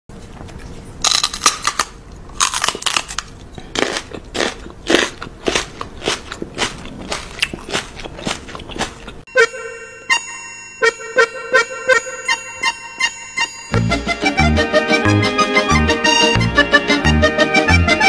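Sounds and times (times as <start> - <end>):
person chewing crunchy food: 0.2 - 9.3.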